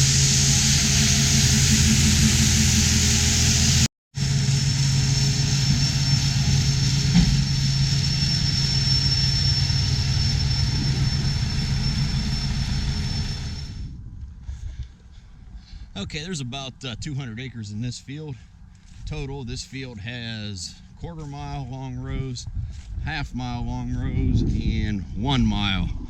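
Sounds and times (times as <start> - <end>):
hiss of air: 0.0 - 13.8
vehicle engine running: 0.0 - 13.8
faint high whine: 0.0 - 14.0.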